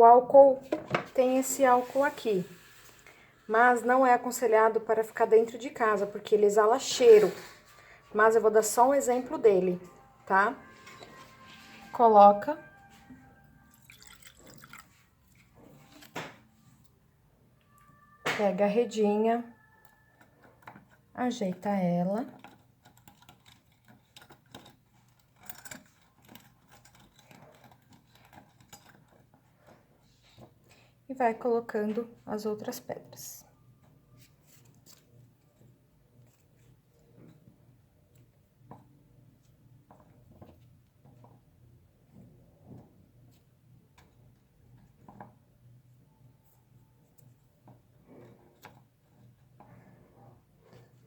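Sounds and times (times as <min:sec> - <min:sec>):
metal mesh clicking and crinkling: 0:20.2 - 0:30.8.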